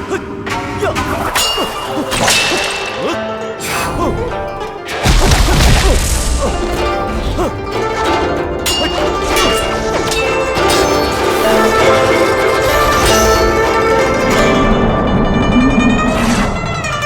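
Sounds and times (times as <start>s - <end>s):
film action music: 0.0s - 17.0s
whacks and crashing hits: 0.5s - 4.3s, 4.9s - 7.6s.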